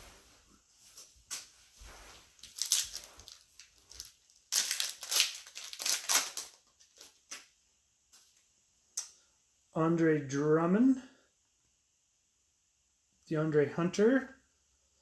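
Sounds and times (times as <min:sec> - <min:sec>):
plastic wrapper crinkling: 0:02.3 - 0:07.5.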